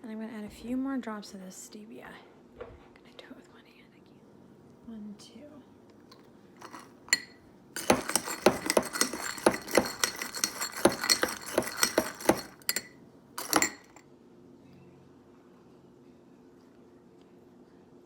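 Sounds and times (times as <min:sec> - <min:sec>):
ice cubes clinking against glass: 0:06.6 - 0:14.0.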